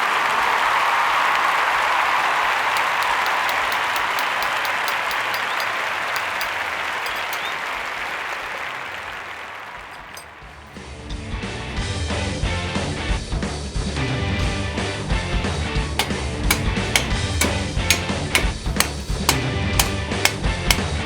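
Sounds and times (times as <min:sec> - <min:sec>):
crowd applause: 0:00.0 - 0:10.4.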